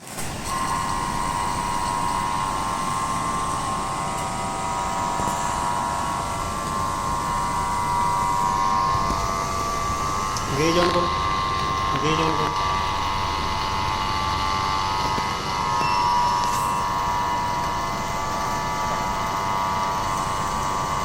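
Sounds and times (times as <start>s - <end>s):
air conditioner running: 0.0s - 21.0s.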